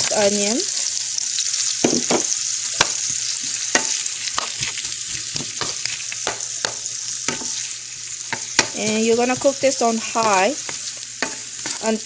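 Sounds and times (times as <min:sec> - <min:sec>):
onions sizzling in a pan: 0:00.0 - 0:12.0.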